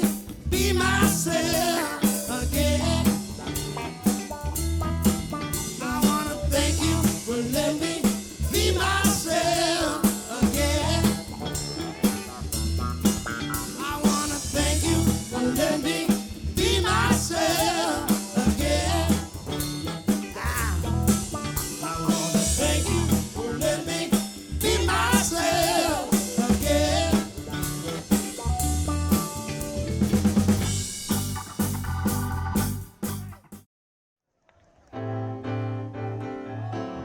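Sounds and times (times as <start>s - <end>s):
person singing: 0.0s - 3.6s, 5.7s - 12.2s, 13.8s - 19.6s, 21.8s - 28.0s
soul band playing: 0.0s - 33.6s.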